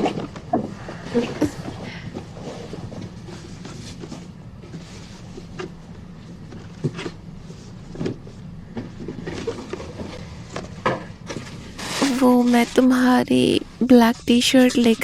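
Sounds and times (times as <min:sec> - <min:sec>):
low steady hum: 0:00.0 - 0:15.0
gift wrapping rustling: 0:11.4 - 0:15.0.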